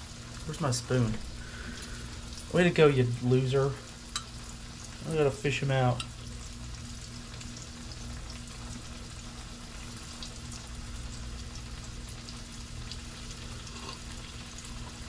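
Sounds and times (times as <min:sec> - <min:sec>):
fish sizzling in oil: 0:00.0 - 0:15.0
low steady hum: 0:00.0 - 0:15.0.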